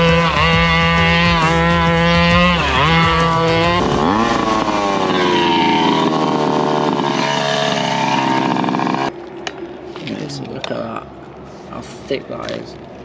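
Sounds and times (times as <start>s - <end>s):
rc car engine revving: 0.0s - 9.1s.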